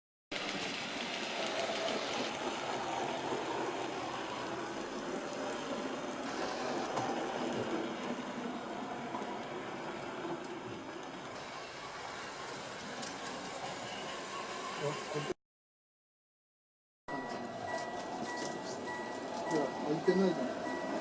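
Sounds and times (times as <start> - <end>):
model train rolling rumble: 0.3 - 15.3
faint high whine: 13.8 - 15.4.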